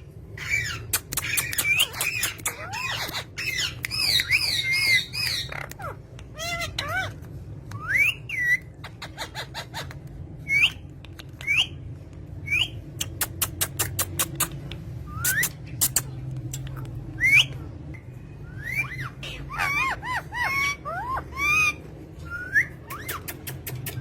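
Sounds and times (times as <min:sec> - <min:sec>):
steady low hum: 0:00.0 - 0:24.0
parrots whistling calls: 0:00.4 - 0:11.8, 0:12.4 - 0:17.6, 0:18.4 - 0:24.0.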